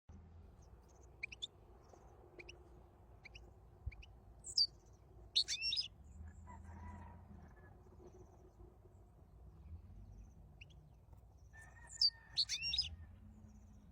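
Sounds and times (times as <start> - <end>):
finch chirping and twittering: 0.8 - 2.6, 3.2 - 5.9, 11.8 - 12.9.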